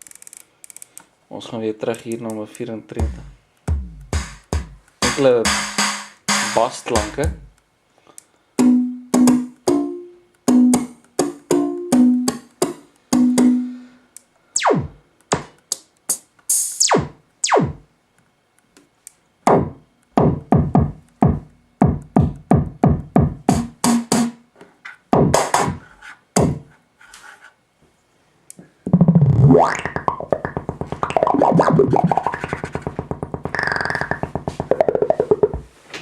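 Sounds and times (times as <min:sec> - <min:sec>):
synthesizer bass notes: 0:03.0 - 0:07.5, 0:14.6 - 0:15.0, 0:16.8 - 0:17.8, 0:28.9 - 0:35.7.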